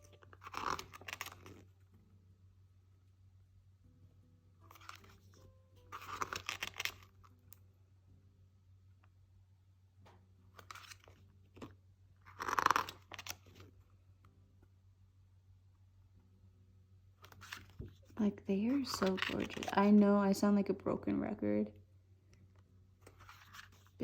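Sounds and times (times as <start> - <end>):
paper pages rustling: 0.0 - 1.8, 4.7 - 7.2, 10.6 - 13.8, 17.2 - 19.8, 23.0 - 24.0
faint steady hum: 0.0 - 6.3, 6.9 - 24.0.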